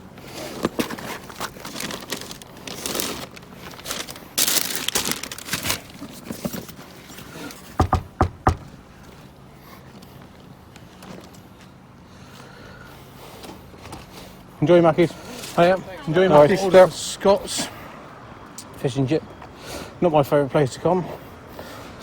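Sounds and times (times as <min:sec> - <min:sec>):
rustling and crinkling handling: 0:00.0 - 0:11.9, 0:13.4 - 0:16.9
sharp knocks: 0:07.8 - 0:08.8.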